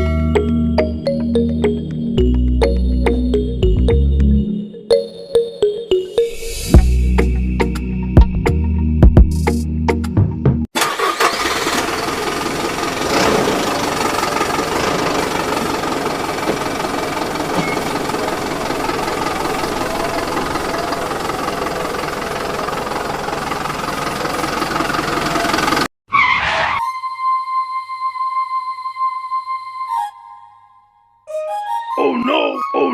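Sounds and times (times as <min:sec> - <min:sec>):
background music: 0:00.0 - 0:10.6, 0:26.8 - 0:32.9.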